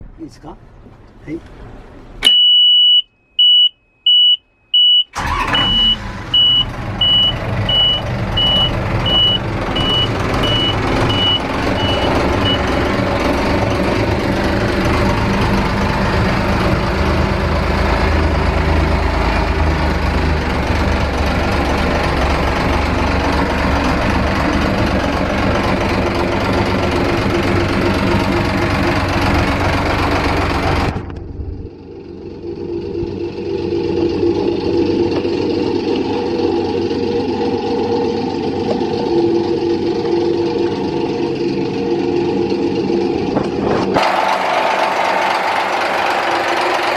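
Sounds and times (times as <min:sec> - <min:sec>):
diesel engine running: 0:00.0 - 0:46.9
warning buzzer beeping: 0:02.3 - 0:12.8.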